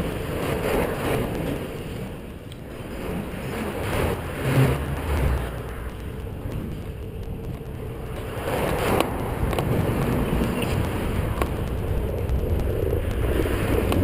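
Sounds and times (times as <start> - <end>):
wind rushing over microphone: 0.0 - 14.0
faint clicks: 4.8 - 14.0.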